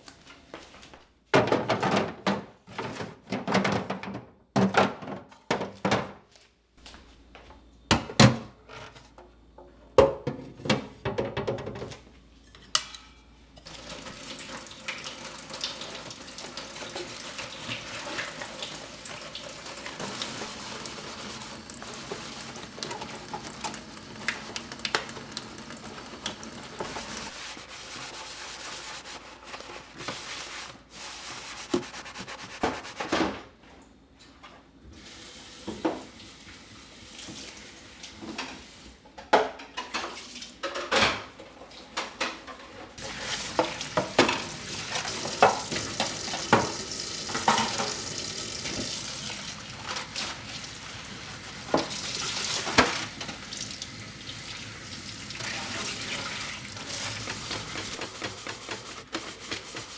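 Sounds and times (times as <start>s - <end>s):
kitchen items clattering: 0.4s - 6.3s, 7.6s - 33.6s, 38.1s - 59.9s
water running from tap into sink: 13.6s - 29.2s, 43.0s - 59.9s.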